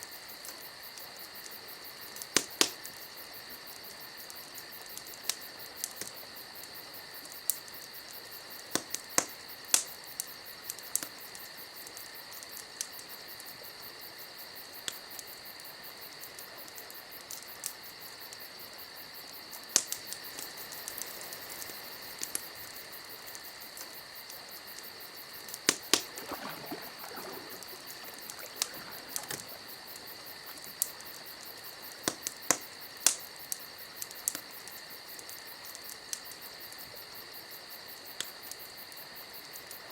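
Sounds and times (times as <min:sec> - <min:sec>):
fire crackling and popping: 0:19.3 - 0:36.5.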